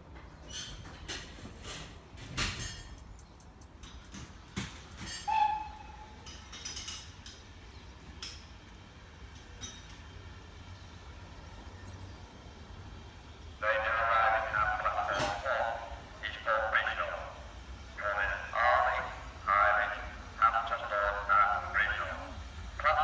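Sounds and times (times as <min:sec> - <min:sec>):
train metallic clanks and knocks: 0:00.0 - 0:10.8, 0:14.0 - 0:15.9.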